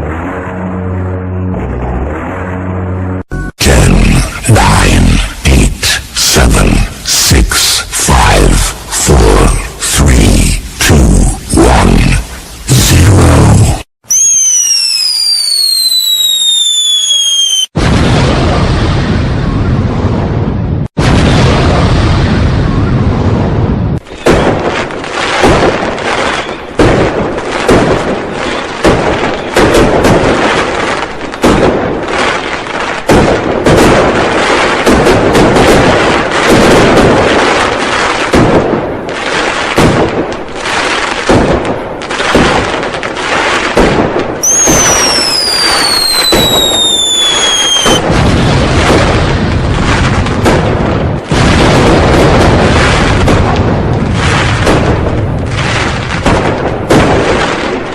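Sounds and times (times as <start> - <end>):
firecrackers and fireworks bangs: 3.6 - 57.9
whistling firework: 14.0 - 17.8, 26.2 - 26.7, 44.4 - 48.1.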